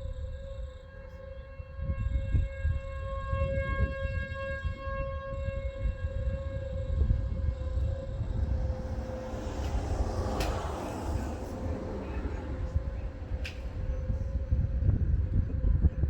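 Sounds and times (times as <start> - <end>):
warning siren steady tone: 0.0 - 16.0
gusty low rumble: 5.4 - 16.0.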